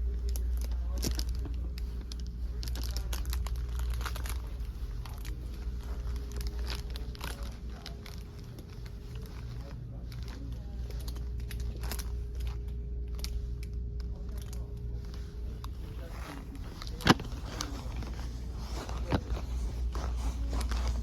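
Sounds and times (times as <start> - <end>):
crinkling handling noise: 0.0 - 21.0
steady low hum: 0.0 - 21.0.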